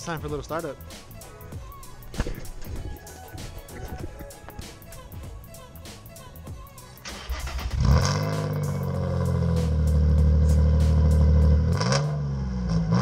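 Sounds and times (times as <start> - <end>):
car engine cranking and idling: 6.6 - 13.0.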